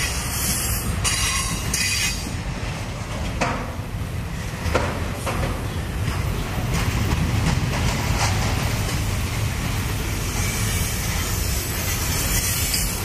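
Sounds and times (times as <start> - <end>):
hiss: 0.0 - 2.3, 10.1 - 13.0
train wheels rumbling on rail: 0.0 - 13.0.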